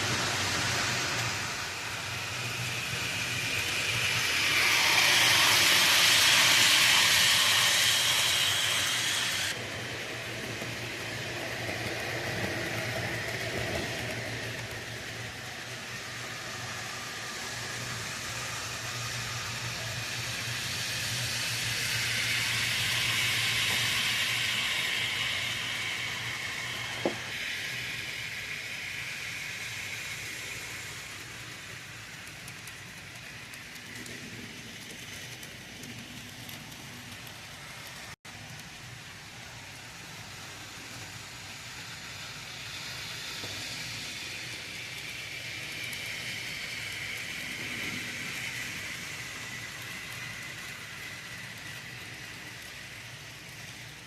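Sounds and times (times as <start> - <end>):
model train wheels on rail: 0.0 - 54.0.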